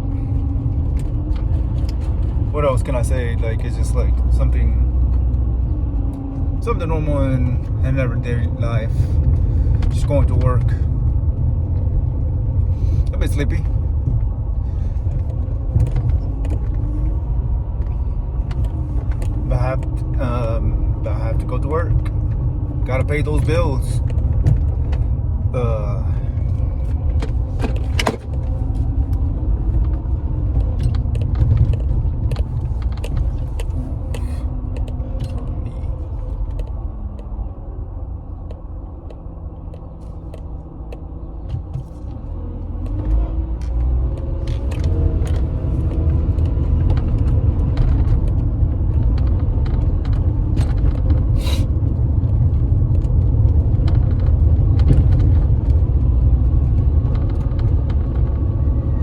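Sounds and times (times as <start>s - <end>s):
car engine and road rumble: 0.0s - 59.0s
small clicks and rattles: 26.4s - 37.4s.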